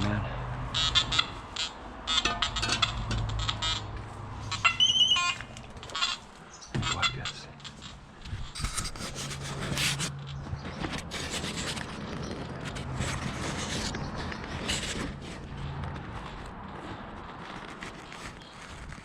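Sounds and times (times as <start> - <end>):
footsteps: 2.5 - 19.0
dry brush rustling: 16.1 - 19.0.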